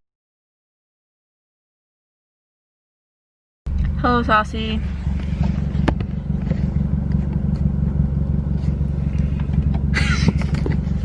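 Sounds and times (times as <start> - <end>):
car engine and road rumble: 3.7 - 11.0.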